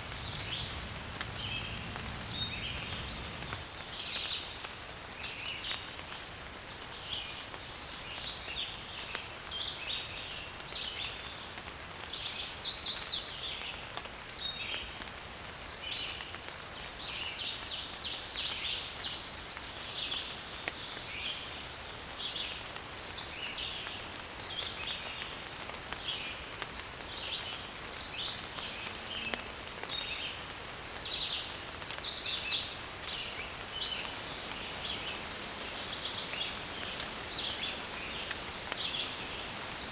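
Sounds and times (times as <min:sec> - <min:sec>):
steady hiss: 0:00.0 - 0:10.4.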